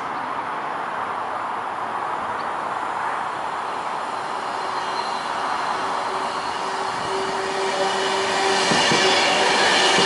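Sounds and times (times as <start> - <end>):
train wheels rushing on rail: 2.6 - 10.0.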